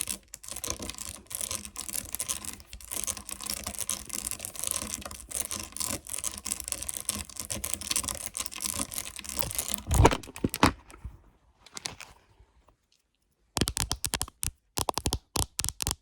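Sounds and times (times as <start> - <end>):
crinkling and crackling: 0.0 - 16.0
sharp cracks: 13.6 - 16.0.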